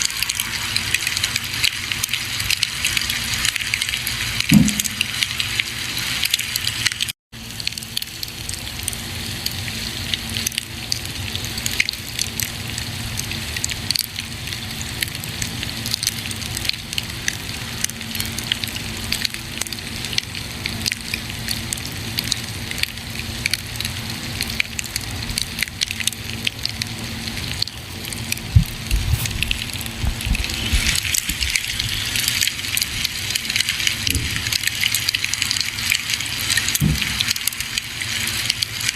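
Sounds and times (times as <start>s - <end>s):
low thumps: 4.5s - 5.2s, 28.5s - 31.0s, 36.8s - 37.3s
campfire crackling and popping: 24.4s - 38.9s.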